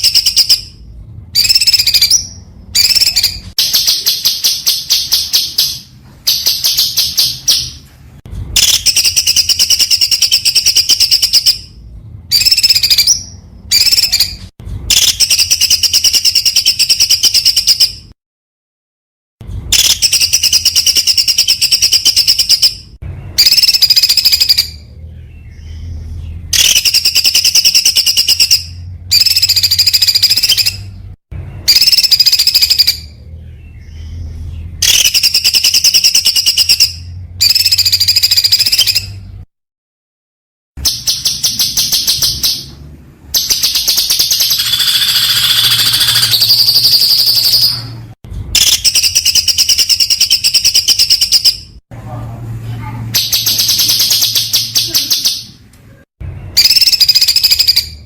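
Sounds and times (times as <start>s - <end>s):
songbird rapid trilled song: 1.4s - 7.8s, 8.6s - 18.0s, 19.7s - 31.0s, 31.6s - 39.2s, 43.3s - 47.8s, 56.6s - 58.0s.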